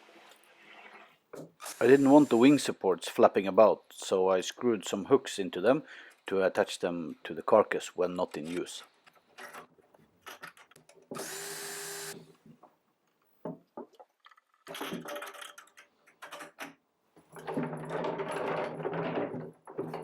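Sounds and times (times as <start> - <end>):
power drill driving screws: 1.6 - 2.7, 11.1 - 12.2
knocks and handling noise: 12.2 - 20.0.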